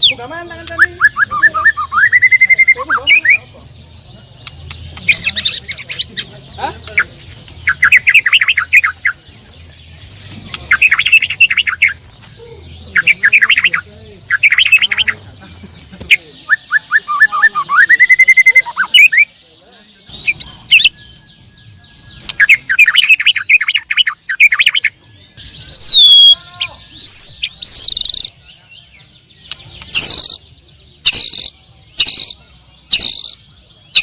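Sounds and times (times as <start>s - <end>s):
songbirds chattering: 0.0s - 34.0s.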